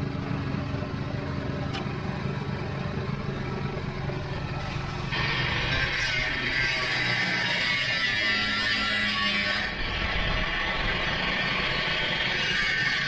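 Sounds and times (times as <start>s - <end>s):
engine idling: 0.0s - 5.9s.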